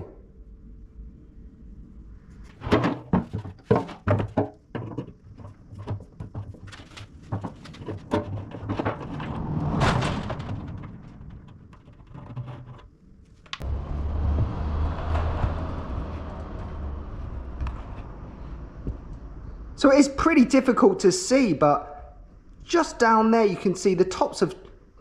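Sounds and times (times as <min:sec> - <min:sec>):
metal knocks and clunks: 0:02.5 - 0:12.9
metal scraping: 0:06.6 - 0:13.0.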